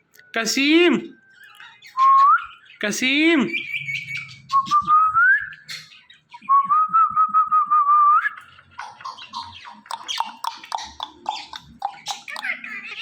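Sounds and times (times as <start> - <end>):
parrot whistling: 3.5 - 13.0
parrot chattering: 8.4 - 13.0.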